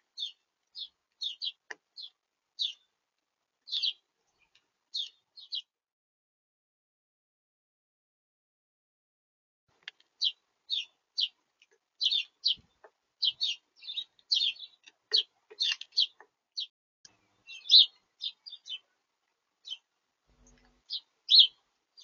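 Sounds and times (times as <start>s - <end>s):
small birds chirping: 0.0s - 3.0s, 3.6s - 5.8s, 9.8s - 19.0s, 19.6s - 22.0s.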